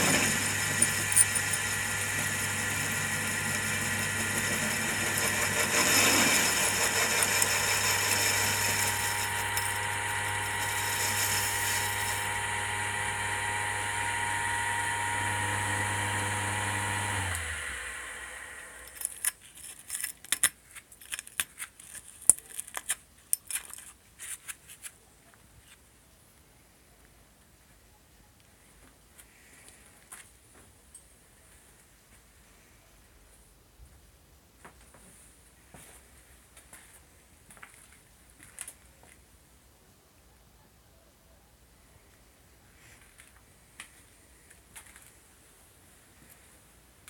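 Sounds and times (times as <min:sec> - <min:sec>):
lathe running: 0:00.0 - 0:19.1
motor spinning down: 0:00.0 - 0:19.1.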